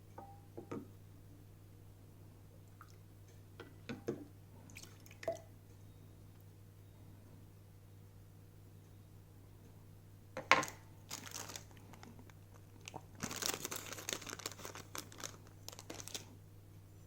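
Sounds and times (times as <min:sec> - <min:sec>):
crinkly rustling: 0:10.6 - 0:16.4.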